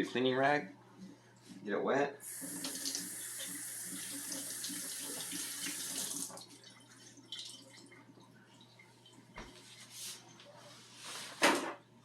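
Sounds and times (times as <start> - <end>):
faucet water running into sink: 2.2 - 7.9
faint handling sounds: 8.6 - 11.6.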